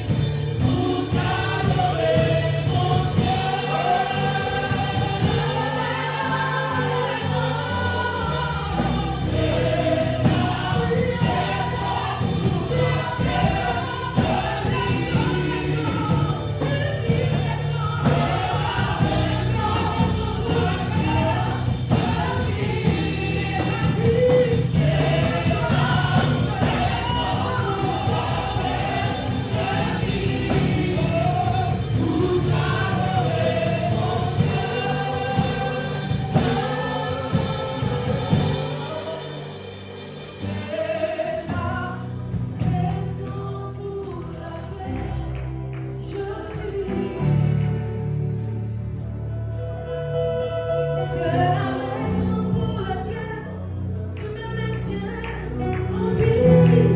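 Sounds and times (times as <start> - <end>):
group singing gospel song: 0.0 - 56.9
instrumental accompaniment: 0.0 - 56.9.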